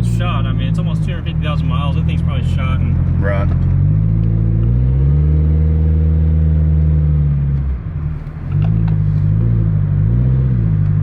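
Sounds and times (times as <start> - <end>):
loud car engine revving: 0.0 - 11.0.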